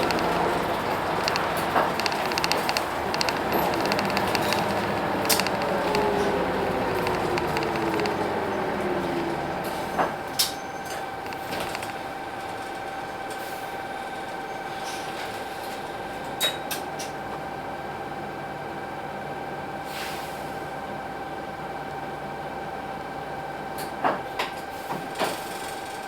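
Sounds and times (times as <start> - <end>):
short sharp clicks: 0.0 - 8.3
steady whine: 0.0 - 9.9
bus diesel engine running: 0.0 - 14.0.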